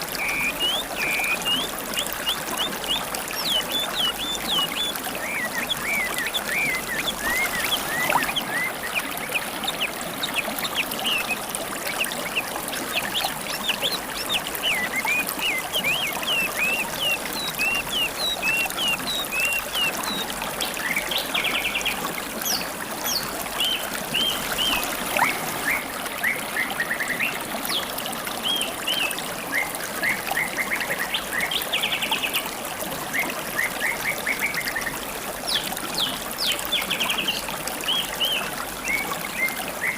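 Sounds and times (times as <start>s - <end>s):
songbirds chirping and trilling: 0.0s - 29.2s
river babbling: 0.0s - 39.9s.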